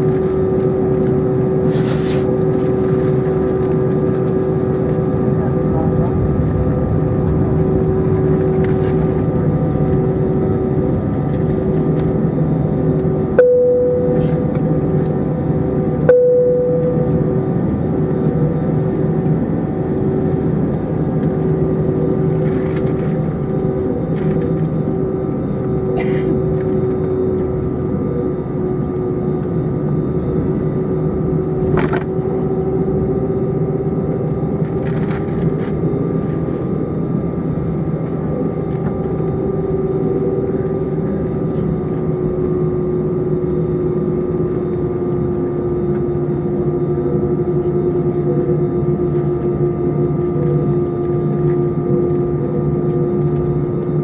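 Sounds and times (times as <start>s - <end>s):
airplane cabin engine drone: 0.0s - 54.0s
humming tones: 3.6s - 20.1s.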